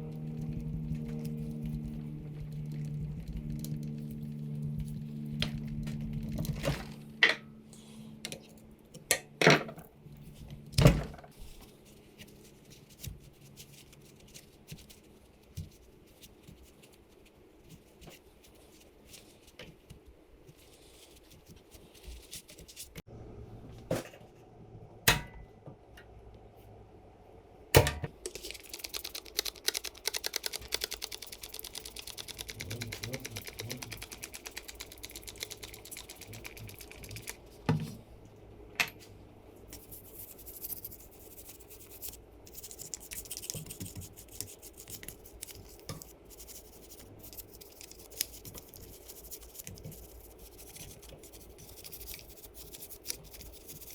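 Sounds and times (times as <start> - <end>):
low hum: 0.0 - 8.8
fast even ticking: 28.4 - 37.4.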